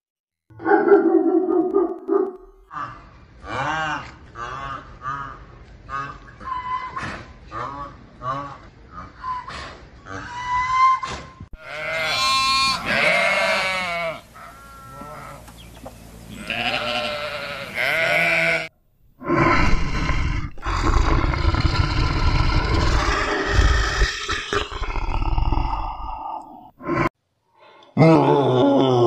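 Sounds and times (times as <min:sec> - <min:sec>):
sheep bleating: 0:11.6 - 0:15.4, 0:16.3 - 0:18.7
tiger growling: 0:19.2 - 0:27.1.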